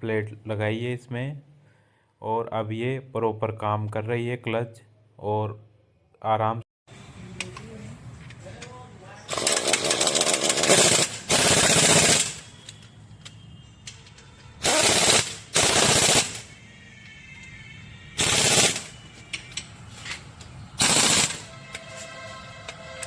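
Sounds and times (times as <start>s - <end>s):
pneumatic impact wrench rattling: 9.3s - 12.4s, 14.6s - 16.4s, 18.2s - 18.9s, 20.0s - 21.5s.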